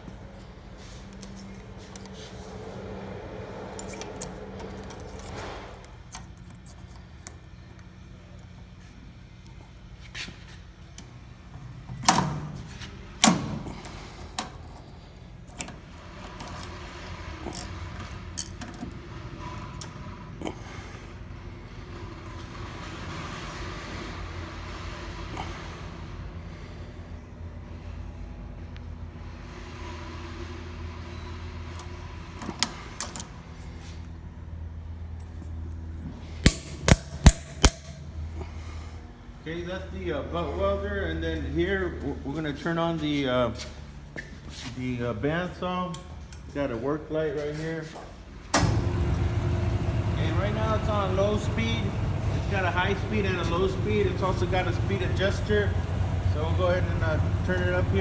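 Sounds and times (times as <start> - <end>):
steady low hum: 0.0 - 47.3, 48.2 - 58.0
sharp loud clacks: 36.4 - 38.0
metal clanks and clicks: 36.4 - 38.1
welder humming: 36.4 - 38.1, 48.6 - 58.0
loud sharp ringing strikes: 36.5 - 38.2.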